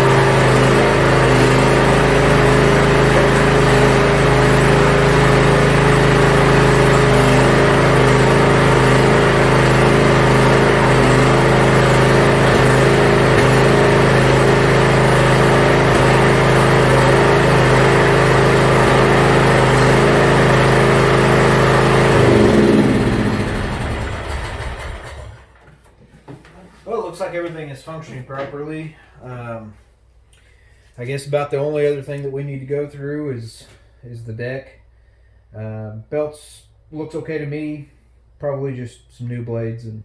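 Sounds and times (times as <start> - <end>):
riding mower engine running: 0.0 - 25.6.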